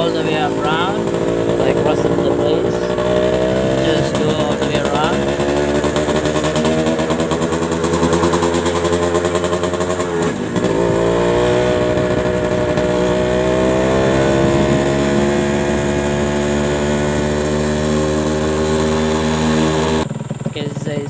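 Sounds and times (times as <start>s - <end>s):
motorcycle engine under throttle: 0.0s - 21.0s.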